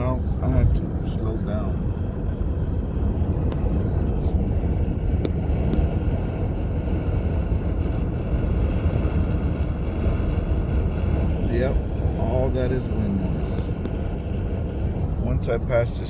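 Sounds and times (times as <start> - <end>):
wind noise inside car cabin: 0.0 - 16.0.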